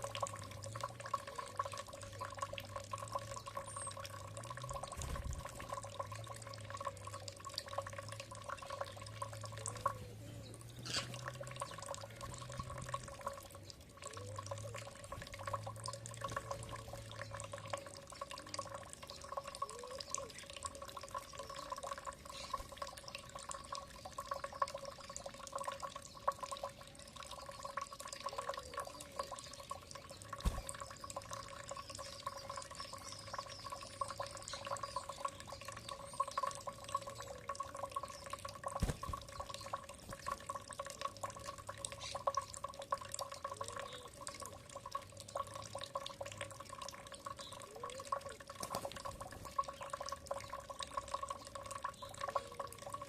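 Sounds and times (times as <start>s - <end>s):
water dripping and trickling: 0.0s - 53.0s
faint high bird chirps: 26.2s - 39.8s.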